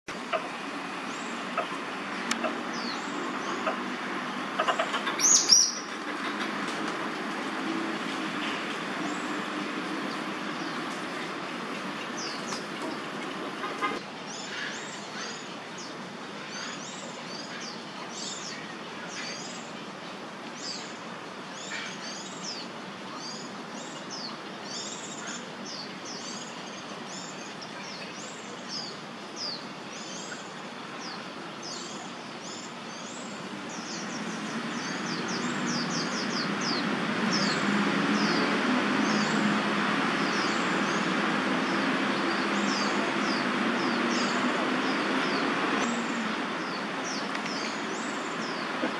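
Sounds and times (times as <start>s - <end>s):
broad rushing noise: 0.1s - 48.9s
small birds chirping: 40.2s - 48.9s.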